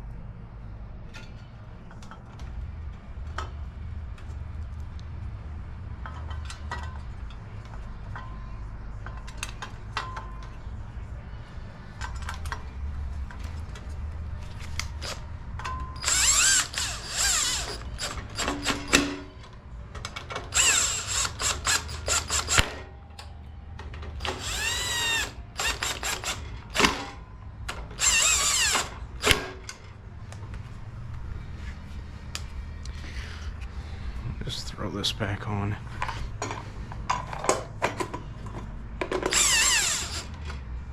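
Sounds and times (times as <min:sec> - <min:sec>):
low hum: 0:00.0 - 0:40.9
tools and parts clicking: 0:09.0 - 0:10.6, 0:12.0 - 0:13.9, 0:14.6 - 0:29.9, 0:36.0 - 0:40.6
power drill whine: 0:16.0 - 0:19.0, 0:20.5 - 0:22.8, 0:24.2 - 0:27.0, 0:28.0 - 0:29.5, 0:39.3 - 0:40.4.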